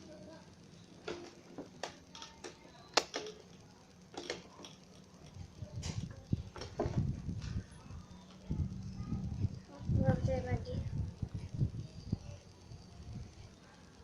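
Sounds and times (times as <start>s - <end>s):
plastic pieces clicking and tapping: 1.0s - 5.0s
low handling rumble: 5.0s - 13.6s.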